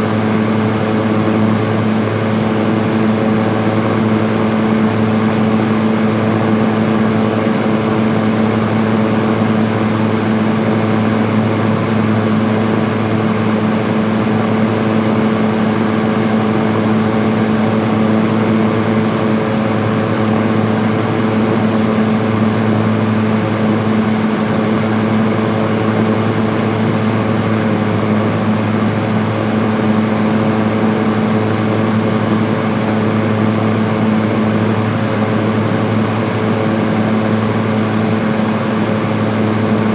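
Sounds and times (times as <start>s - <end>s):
electric fan running: 0.0s - 39.9s.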